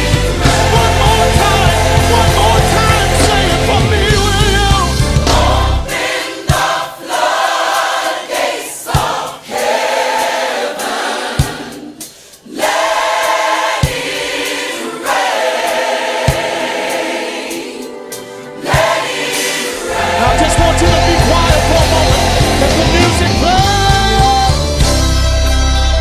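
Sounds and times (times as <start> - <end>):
heavy bass: 0.0 - 5.9, 19.8 - 26.0
low drum beat: 0.0 - 5.9, 19.9 - 25.1
band playing: 0.0 - 6.8, 12.9 - 26.0
gospel choir singing: 0.0 - 26.0.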